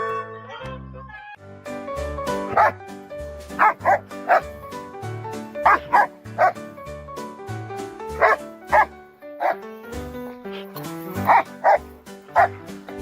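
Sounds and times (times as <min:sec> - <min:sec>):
dog barking: 0:02.5 - 0:02.8, 0:03.6 - 0:04.5, 0:05.6 - 0:06.6, 0:08.2 - 0:09.6, 0:11.3 - 0:12.6.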